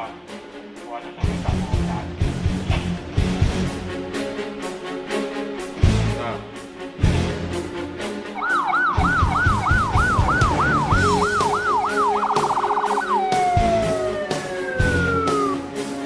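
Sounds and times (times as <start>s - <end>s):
music with steady beat: 7.0s - 16.0s
electronic siren wailing: 8.4s - 15.7s.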